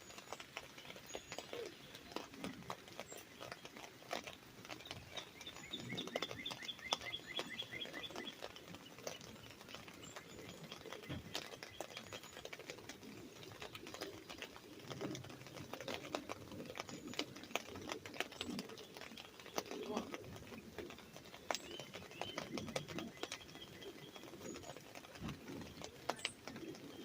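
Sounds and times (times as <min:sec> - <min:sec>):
rain pattering on an umbrella: 0:00.0 - 0:27.0
bird singing a rapid trill: 0:05.1 - 0:08.4.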